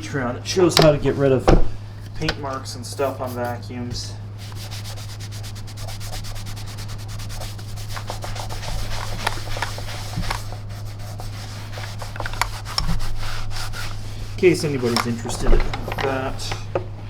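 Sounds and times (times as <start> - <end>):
low steady hum: 0.0 - 17.0
rag rubbing on painted surface: 3.0 - 16.5.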